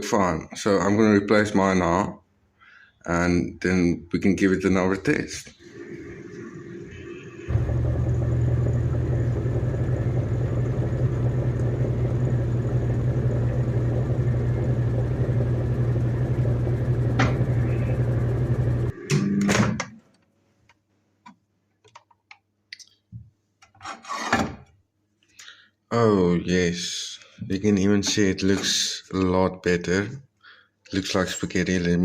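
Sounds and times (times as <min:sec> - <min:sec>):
microwave oven humming: 0:05.6 - 0:20.1.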